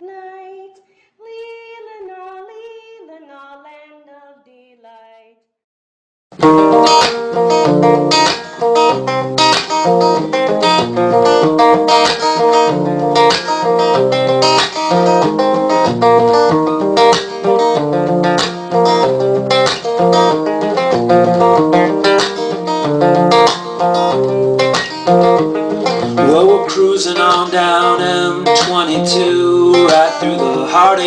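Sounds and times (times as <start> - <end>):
acoustic guitar strumming: 6.4 - 31.0.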